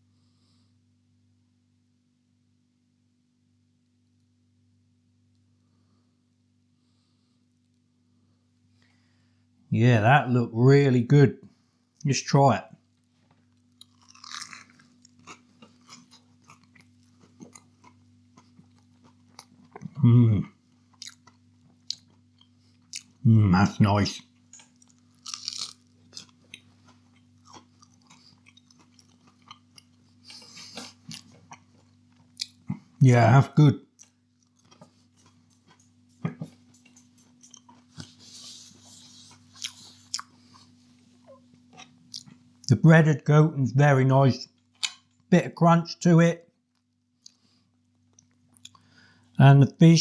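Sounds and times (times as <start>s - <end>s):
person chewing crunchy food: 12.8s - 33.0s, 33.9s - 42.7s, 44.5s - 45.3s, 46.7s - 49.3s.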